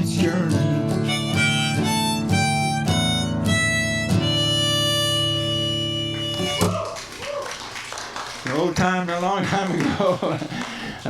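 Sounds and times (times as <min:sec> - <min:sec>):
acoustic guitar: 0:00.0 - 0:07.2
harmonica: 0:00.1 - 0:06.8.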